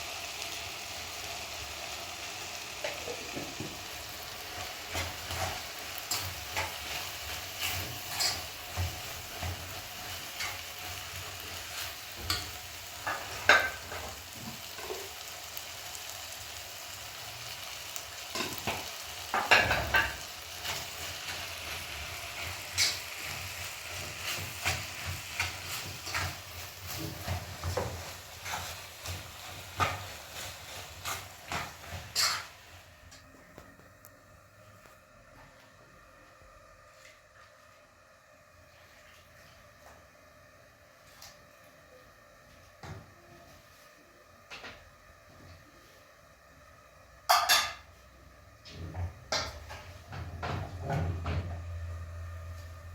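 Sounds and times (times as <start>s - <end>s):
food sizzling in a pan: 0.0s - 34.7s, 38.4s - 52.9s
utensil scraping a pan: 4.9s - 10.7s.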